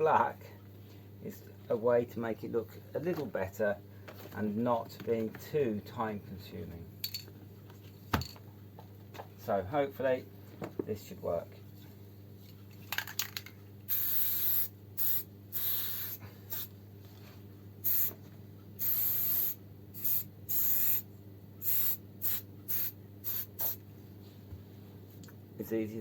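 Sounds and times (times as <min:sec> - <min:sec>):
aerosol spray paint hissing: 0:13.9 - 0:16.7, 0:17.8 - 0:18.2, 0:18.8 - 0:23.8.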